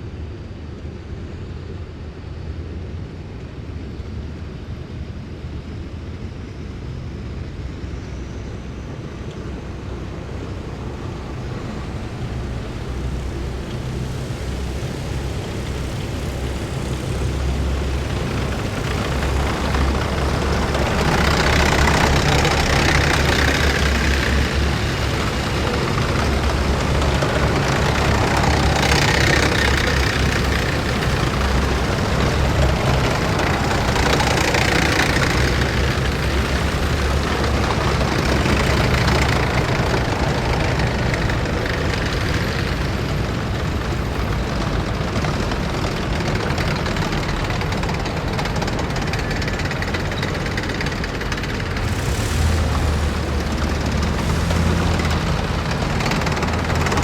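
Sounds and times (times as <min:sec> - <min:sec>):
heavy vehicles driving past: 0:08.1 - 0:57.0.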